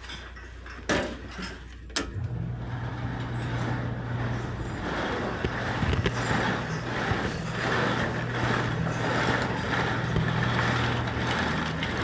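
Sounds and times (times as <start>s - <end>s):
electric motor humming: 2.2s - 12.0s.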